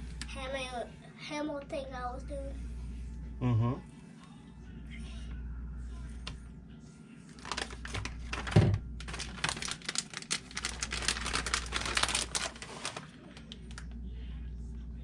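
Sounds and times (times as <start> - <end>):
rapid crinkling and clicking: 7.4 - 14.0.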